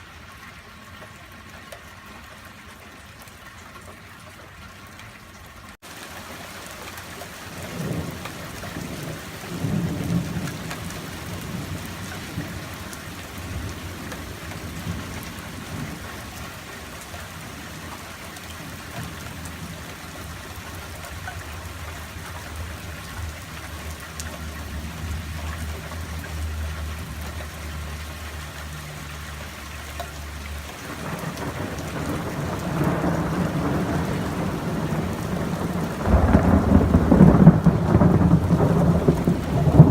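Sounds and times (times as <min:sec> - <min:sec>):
steady rain falling: 0:00.0 - 0:39.9
rolling thunder: 0:30.8 - 0:39.9.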